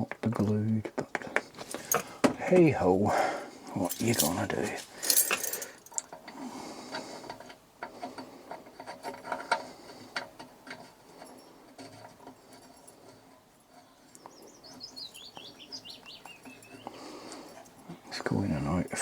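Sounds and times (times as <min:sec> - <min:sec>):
metal pipe fittings clicking: 0:03.9 - 0:06.3
bird chirping: 0:13.9 - 0:17.3.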